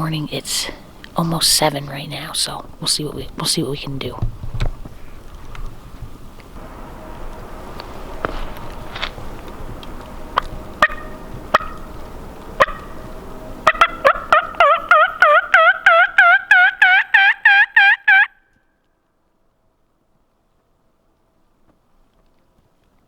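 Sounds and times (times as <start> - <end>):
turkey call clucks: 10.4 - 11.9, 12.6 - 13.0, 13.6 - 18.4
turkey call yelps: 10.8 - 11.9, 12.6 - 13.0, 13.6 - 18.4.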